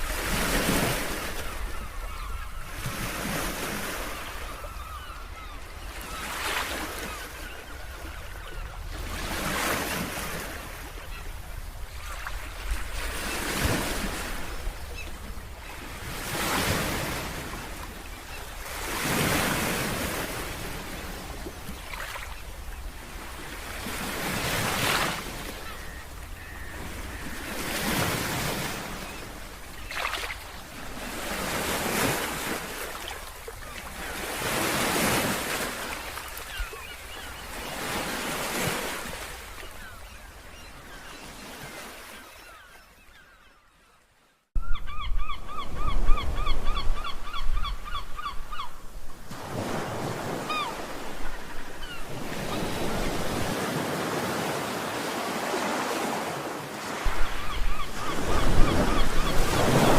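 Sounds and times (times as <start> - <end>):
sea waves breaking: 0.0 - 42.7, 49.1 - 59.9.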